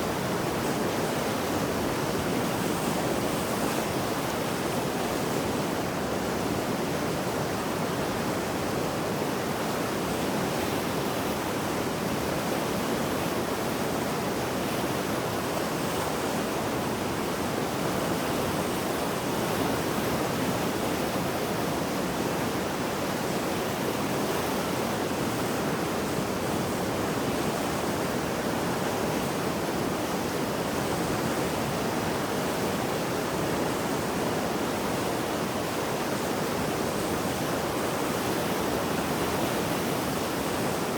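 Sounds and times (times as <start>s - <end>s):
river rushing: 0.0s - 40.9s.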